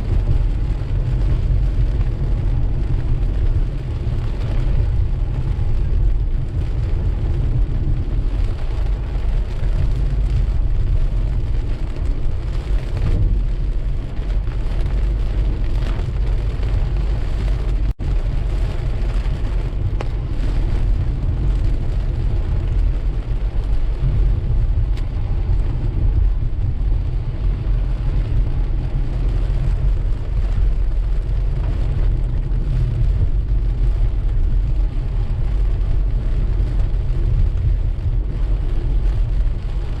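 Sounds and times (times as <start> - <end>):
rain hissing on car: 0.0 - 40.0
road and tyre rumble: 0.0 - 40.0.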